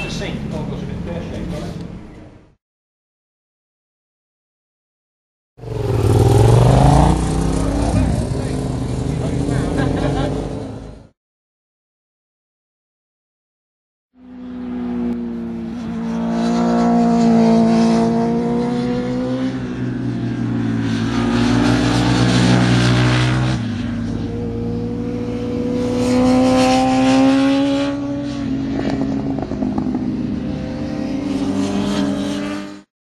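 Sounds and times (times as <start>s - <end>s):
motorcycle engine revving: 5.6s - 11.1s, 14.2s - 32.9s.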